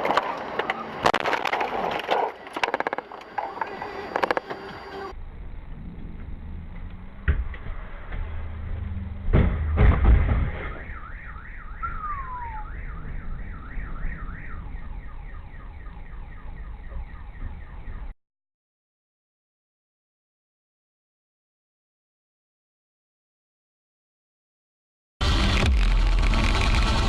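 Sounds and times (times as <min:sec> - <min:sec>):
road and engine rumble: 0:00.0 - 0:18.2, 0:25.2 - 0:27.0
collision bangs: 0:09.3 - 0:14.4
car alarm warbling: 0:09.6 - 0:18.2.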